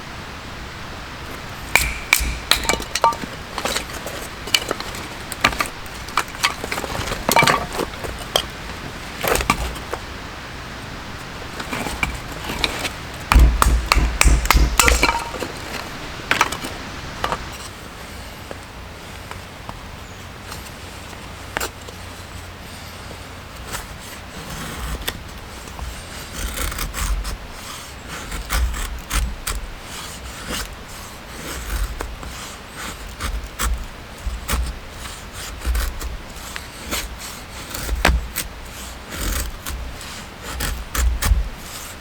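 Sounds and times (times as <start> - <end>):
heavier thumps: 1.6 - 9.6, 13.3 - 16.6
hard objects knocking and clinking: 1.7 - 9.9, 11.5 - 17.5.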